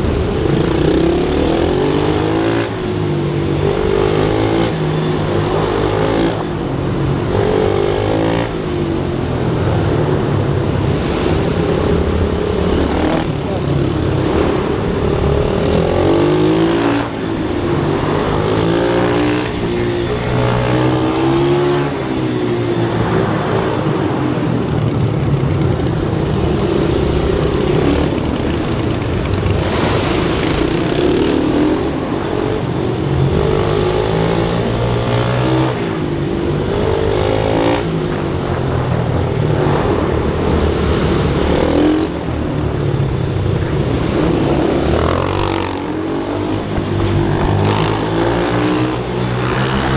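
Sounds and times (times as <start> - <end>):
pit bike engine revving: 0.0 - 49.9.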